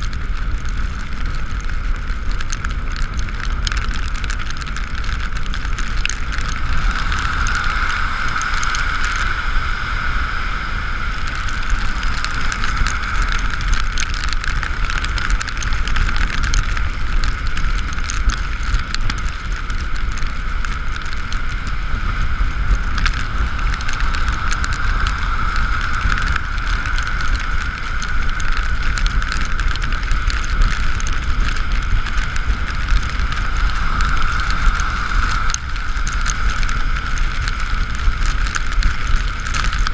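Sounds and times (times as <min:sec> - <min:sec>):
tyres hissing on wet road: 0:00.0 - 0:39.9
wind rumbling on microphone: 0:00.0 - 0:39.9
steady high whine: 0:05.1 - 0:17.5.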